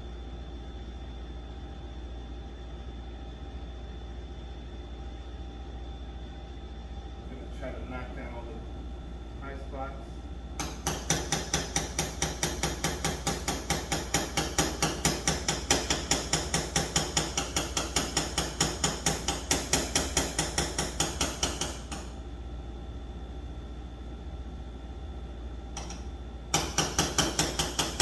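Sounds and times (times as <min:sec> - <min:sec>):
hammer tapping on car body panel: 0:10.6 - 0:22.1.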